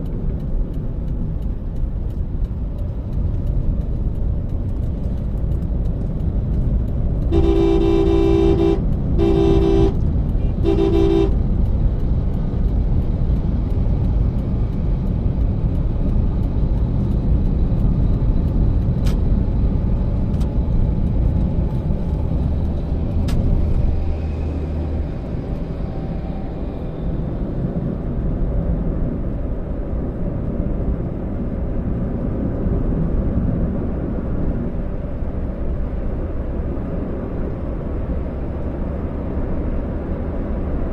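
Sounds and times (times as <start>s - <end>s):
car driving on road: 0.0s - 40.9s
car horn honking: 7.3s - 11.4s.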